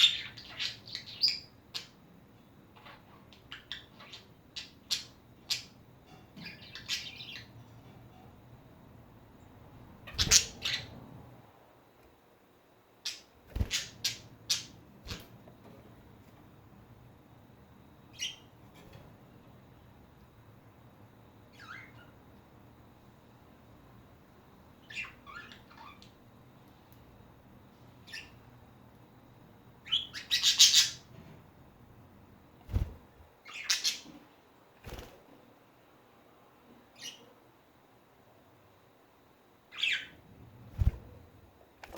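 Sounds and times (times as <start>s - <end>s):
budgies squawking and chirping: 10.1s - 11.0s
budgerigars chirping: 29.8s - 31.0s.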